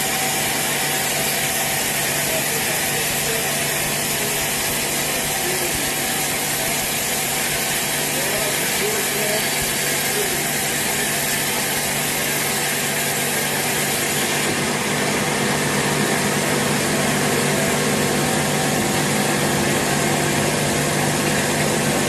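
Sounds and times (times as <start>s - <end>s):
sawmill machinery humming: 0.0s - 22.0s.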